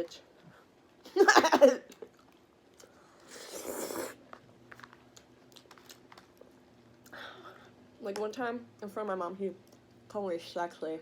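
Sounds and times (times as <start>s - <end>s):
person chewing food: 1.9s - 7.2s.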